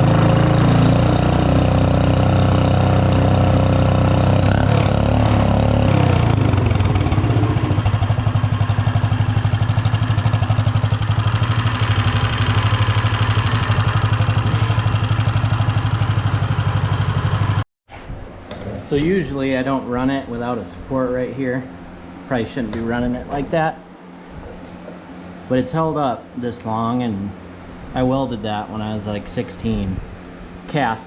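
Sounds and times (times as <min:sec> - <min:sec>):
small engine running: 0:00.0 - 0:17.6.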